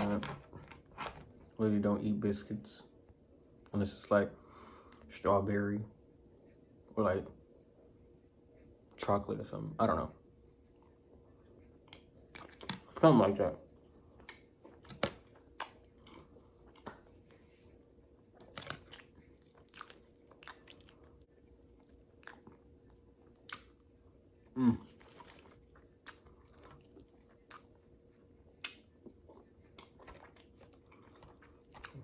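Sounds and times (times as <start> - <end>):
person chewing food: 10.4 - 13.0, 13.7 - 32.0.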